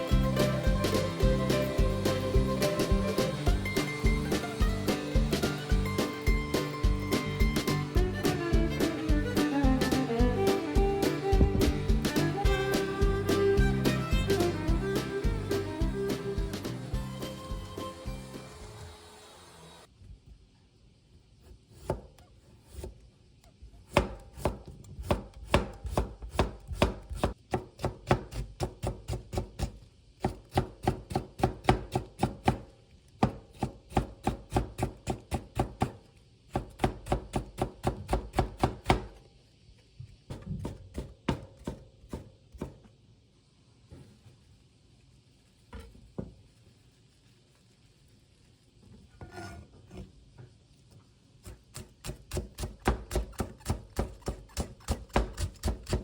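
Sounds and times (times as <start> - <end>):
knife chopping on cutting board: 23.9 - 32.6, 36.6 - 39.1, 51.5 - 56.0.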